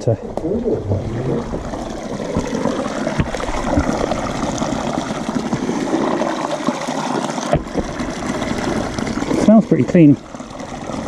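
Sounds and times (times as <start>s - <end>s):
water running: 0.0s - 11.0s
low bumps: 0.2s - 4.4s.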